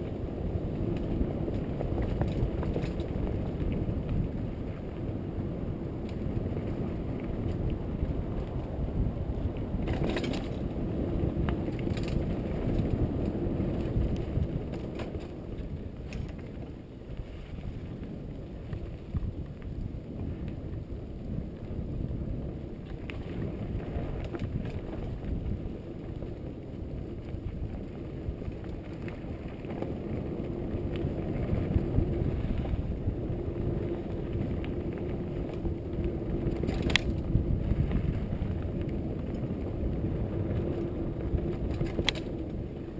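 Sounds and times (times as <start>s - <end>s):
bike chain and frame rattle: 0.0s - 5.1s, 9.4s - 19.9s, 22.8s - 42.9s
tyre and wind rumble: 0.0s - 42.9s.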